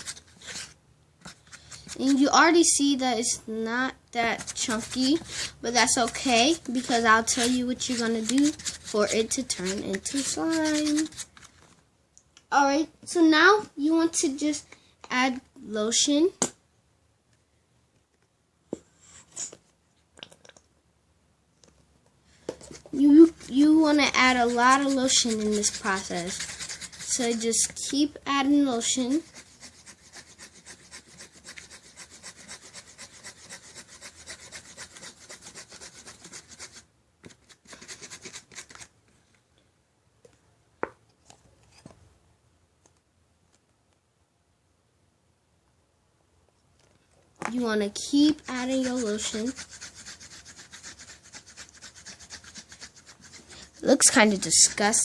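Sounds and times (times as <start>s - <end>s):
utensil scraping container: 4.2s - 11.5s, 22.6s - 28.1s, 47.5s - 55.0s.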